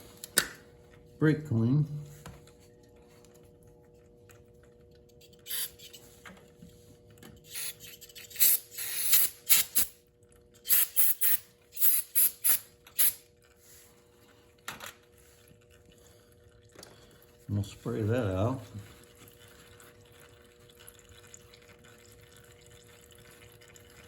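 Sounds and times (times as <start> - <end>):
aerosol spray hissing: 7.5 - 9.9, 10.7 - 13.2.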